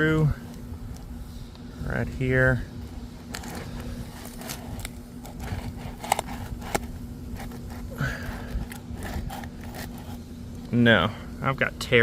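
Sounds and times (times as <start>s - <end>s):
faint steady hum: 0.0s - 12.0s
shingle crackling and scraping: 2.8s - 10.3s.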